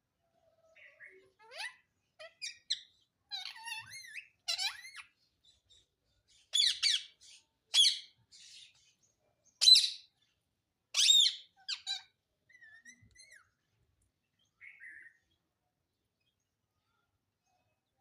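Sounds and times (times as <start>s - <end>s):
parrot harsh calls: 0.9s - 5.1s, 10.9s - 13.4s
parrot chirping and whistling: 11.0s - 12.0s.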